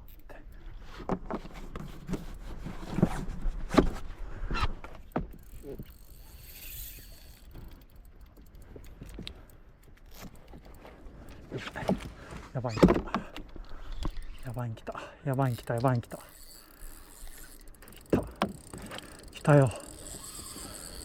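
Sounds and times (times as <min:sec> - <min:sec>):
fishing gear knocks and rattles: 0:04.8 - 0:21.0.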